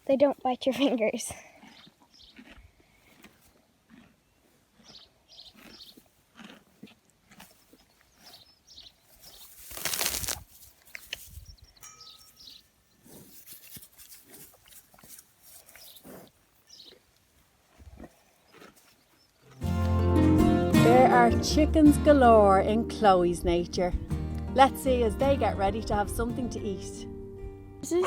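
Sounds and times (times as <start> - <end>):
horse crunching grass: 1.6 - 11.4, 12.4 - 20.0
bird chirps: 11.0 - 13.0.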